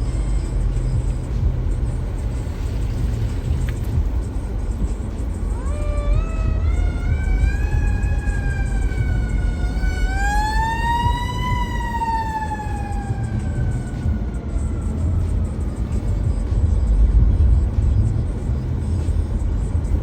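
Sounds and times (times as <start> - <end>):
street traffic rumble: 0.0 - 20.0
emergency vehicle siren wailing: 3.9 - 17.2.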